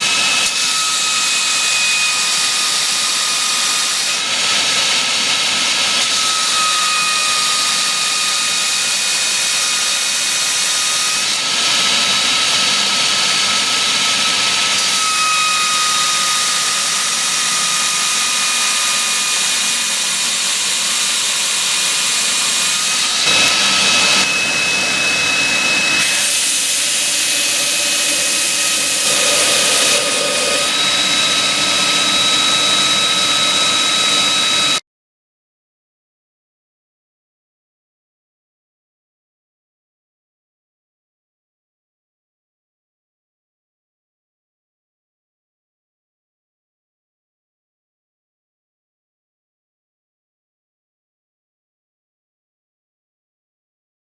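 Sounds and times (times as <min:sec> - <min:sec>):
belt grinder whining and hissing: 0:00.0 - 0:34.8.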